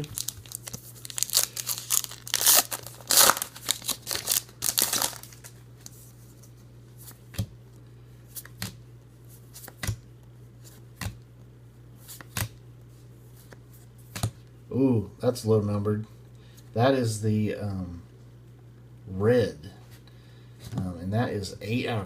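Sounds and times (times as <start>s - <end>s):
plastic wrapper crinkling and tearing: 0.0s - 5.6s.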